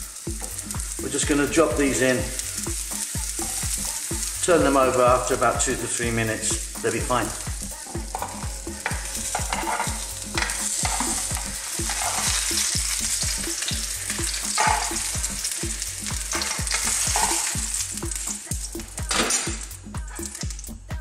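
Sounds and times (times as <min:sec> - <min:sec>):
eggplant sizzling in oil: 0:00.0 - 0:21.0
metal tongs knocking on pan: 0:07.9 - 0:12.7, 0:13.5 - 0:17.6.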